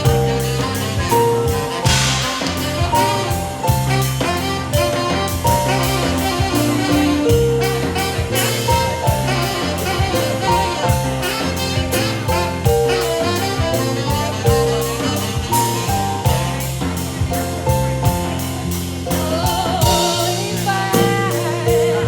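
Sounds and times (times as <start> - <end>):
drum kit beat: 0.0 - 22.0
electric bass: 0.0 - 22.0
keyboard: 0.0 - 22.0
saxophone melody: 0.0 - 22.0.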